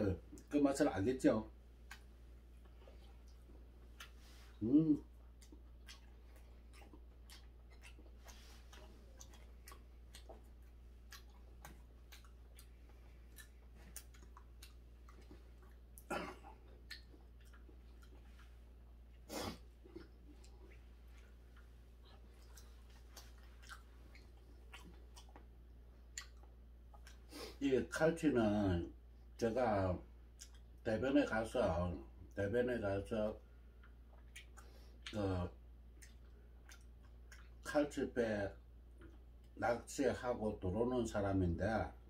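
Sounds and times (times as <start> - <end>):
low steady hum: 0.0 - 42.0
chewing and mouth clicks: 1.8 - 27.6, 30.3 - 30.9, 33.3 - 37.7, 38.7 - 39.6.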